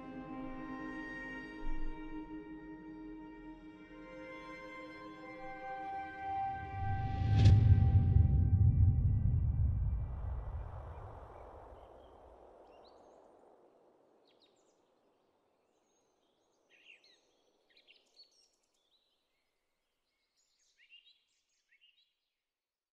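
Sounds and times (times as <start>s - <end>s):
deep rushing swell: 6.5s - 11.8s.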